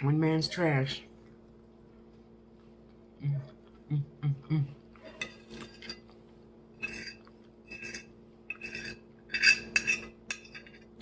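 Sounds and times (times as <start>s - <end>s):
metal utensil scraping a dish: 6.8s - 10.9s.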